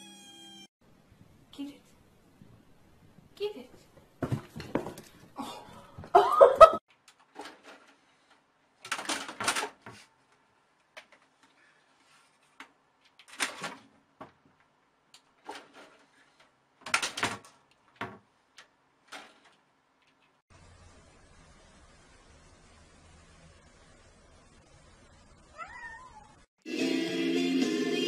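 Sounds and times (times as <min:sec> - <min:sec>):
cat crying loudly: 0:25.5 - 0:26.4.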